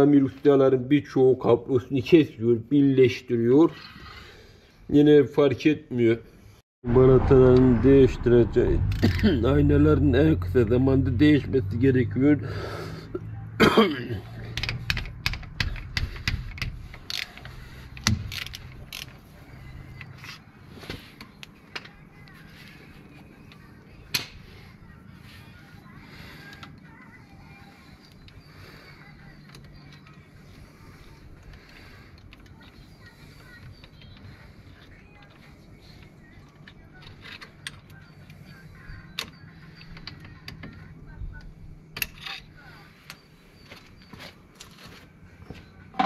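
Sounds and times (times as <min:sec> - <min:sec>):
low steady hum: 0:06.9 - 0:13.8.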